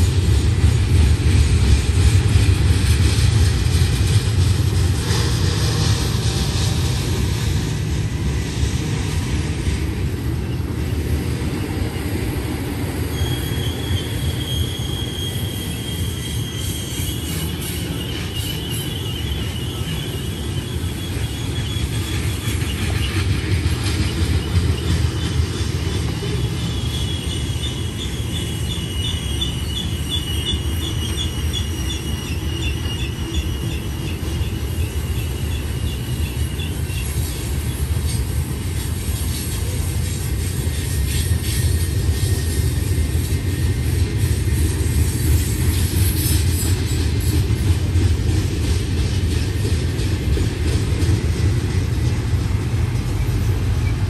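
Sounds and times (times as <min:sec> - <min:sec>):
freight train wheels rumbling: 0:00.0 - 0:54.0
high wavering wheel squeal: 0:13.0 - 0:23.3, 0:26.0 - 0:37.2.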